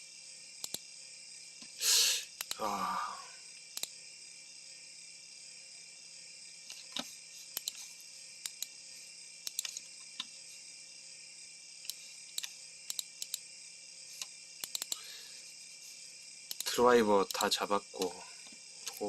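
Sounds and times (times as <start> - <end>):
steady high-pitched hiss: 0.0 - 19.0
laptop clicks: 14.6 - 15.0.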